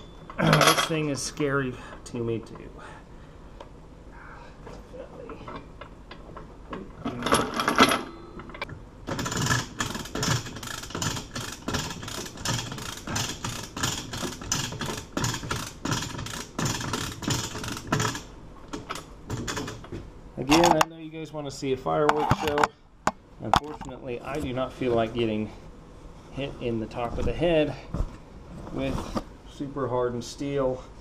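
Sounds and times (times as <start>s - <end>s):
metal rattling: 9.1s - 19.8s
rapid mechanical clicking: 9.1s - 19.9s.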